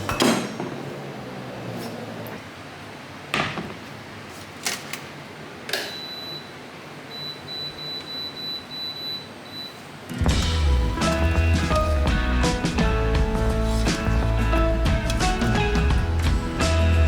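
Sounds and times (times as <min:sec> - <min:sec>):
appliance beeping high tone: 0:05.8 - 0:11.9
cookware knocking: 0:10.3 - 0:16.6.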